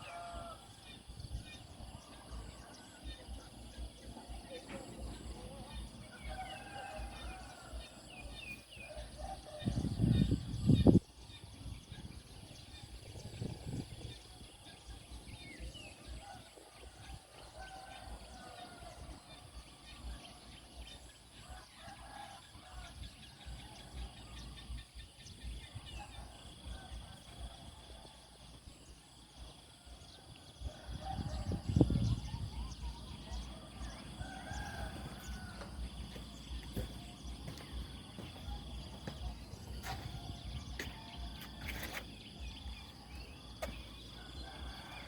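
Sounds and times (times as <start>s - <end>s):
low microphone rumbles: 30.9s - 45.0s
birds chirping: 32.0s - 45.0s.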